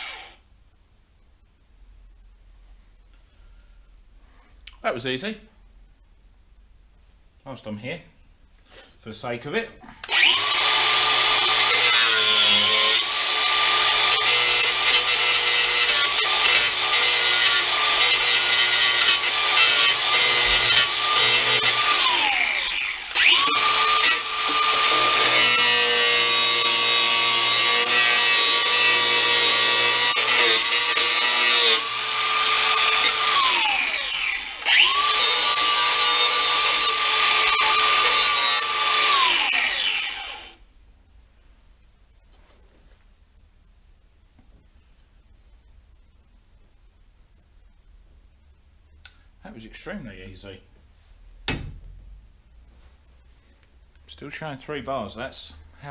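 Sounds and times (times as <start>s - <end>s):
angle grinder cutting sheet steel: 0.0s - 0.4s, 10.1s - 40.6s
grinder motor winding down: 10.1s - 15.1s.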